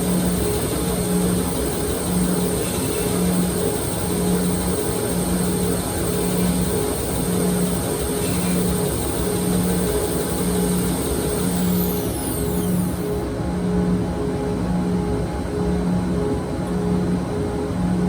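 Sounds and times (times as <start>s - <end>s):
knife grinder pulsing hum: 0.0s - 13.3s.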